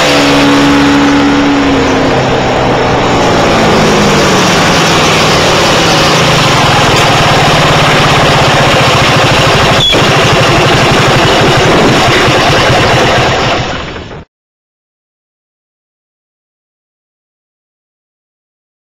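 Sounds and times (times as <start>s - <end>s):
scooter engine running: 0.0s - 14.3s.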